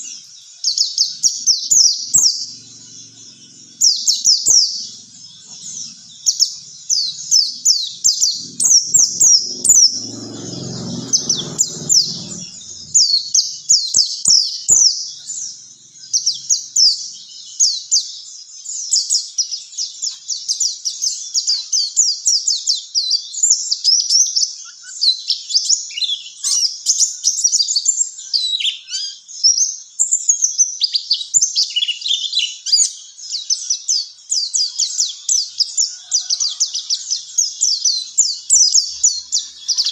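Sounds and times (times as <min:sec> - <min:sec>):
low muffled rumble: 0:06.8 - 0:13.4.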